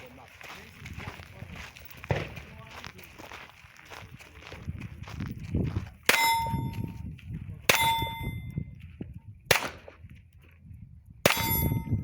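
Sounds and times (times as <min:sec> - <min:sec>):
steel target ringing: 0:06.1 - 0:06.9, 0:07.7 - 0:08.5, 0:11.3 - 0:12.0
pistol shots: 0:09.5 - 0:10.0, 0:11.2 - 0:11.8.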